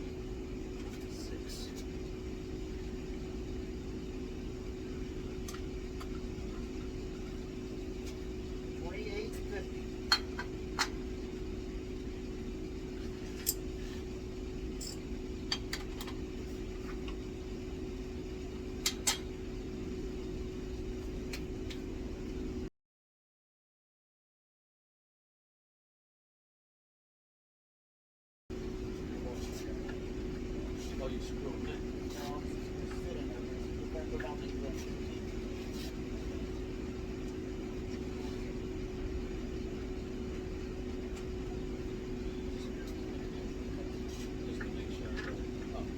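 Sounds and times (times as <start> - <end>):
shop equipment humming: 0.0 - 22.7, 28.5 - 45.9.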